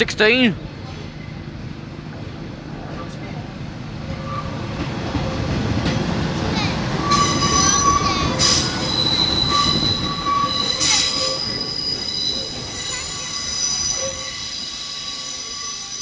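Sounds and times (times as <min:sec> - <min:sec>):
low train rumble: 0:00.0 - 0:16.0
train wheels squealing on rails: 0:04.0 - 0:05.6, 0:06.4 - 0:16.0.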